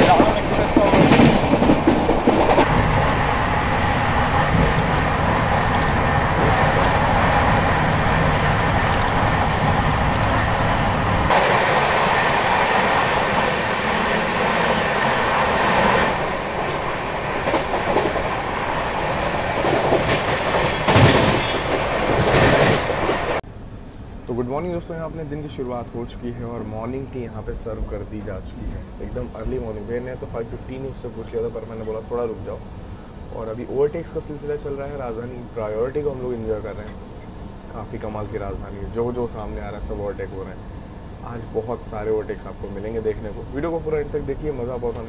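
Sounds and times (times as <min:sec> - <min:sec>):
wheels clacking over rail joints: 0:00.0 - 0:24.0
wheel and wind rush: 0:00.0 - 0:24.3
passing train: 0:00.0 - 0:45.0.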